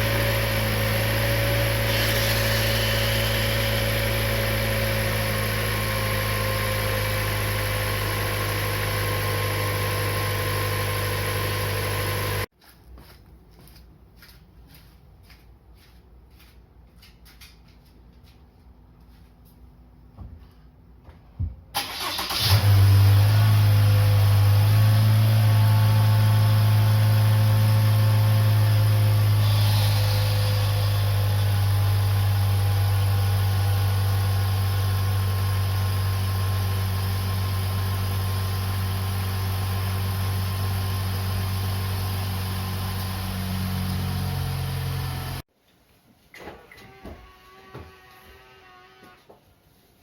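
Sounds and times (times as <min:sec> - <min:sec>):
car engine starting: 0:00.0 - 0:12.5, 0:21.8 - 0:45.4
loud low engine hum: 0:00.0 - 0:12.5, 0:21.9 - 0:45.4.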